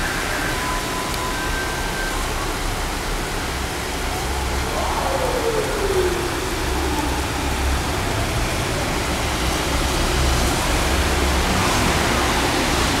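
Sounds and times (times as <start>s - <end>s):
heavy rain pouring: 0.0s - 13.0s
low rumble: 3.7s - 9.3s.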